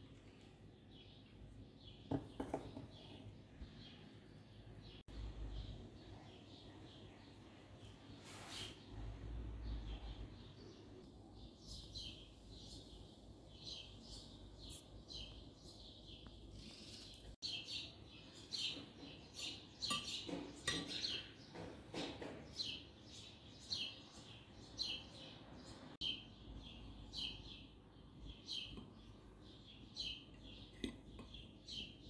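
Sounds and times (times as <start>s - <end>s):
small bird chirping: 9.7s - 21.6s.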